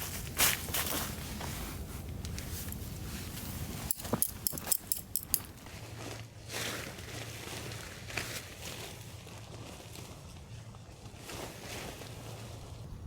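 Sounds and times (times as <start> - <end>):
rustling: 0.0 - 12.8
sharp clicks and knocks: 3.9 - 5.5.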